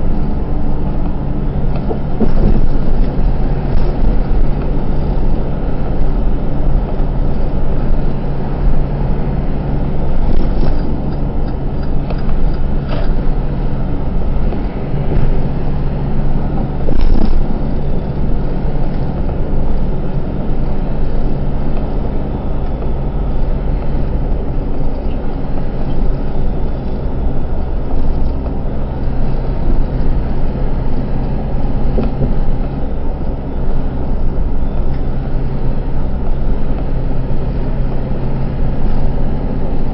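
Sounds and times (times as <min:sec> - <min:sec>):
truck engine and road drone: 0:00.0 - 0:39.9.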